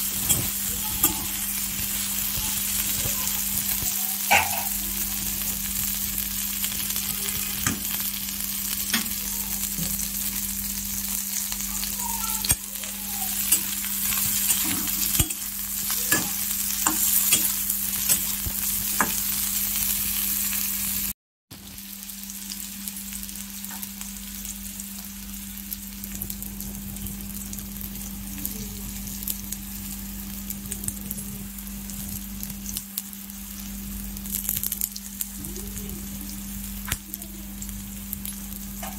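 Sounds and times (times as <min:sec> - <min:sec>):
vegetables sizzling in oil: 0:00.0 - 0:38.9
spatula scraping a wok: 0:12.4 - 0:19.4.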